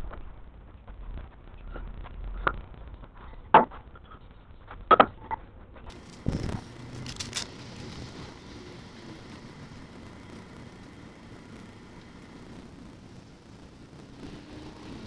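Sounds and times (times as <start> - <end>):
faint background noise: 0.0 - 15.0.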